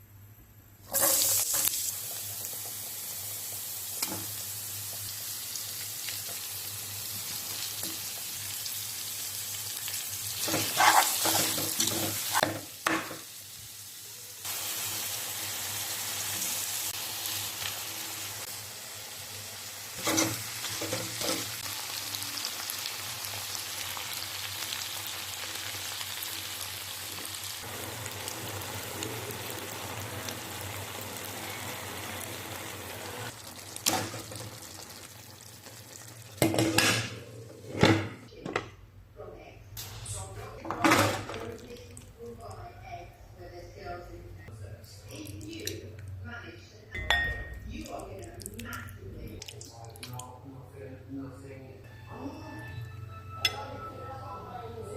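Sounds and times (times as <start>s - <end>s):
food sizzling in a pan: 0.9s - 37.2s.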